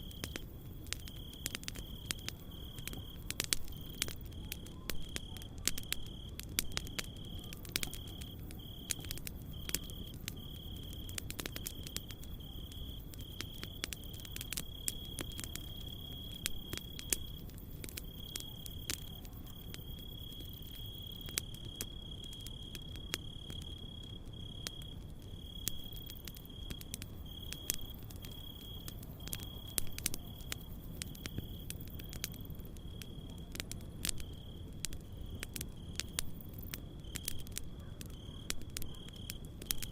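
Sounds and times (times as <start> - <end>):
campfire crackling: 0.0 - 39.9
cricket trill: 0.0 - 39.9.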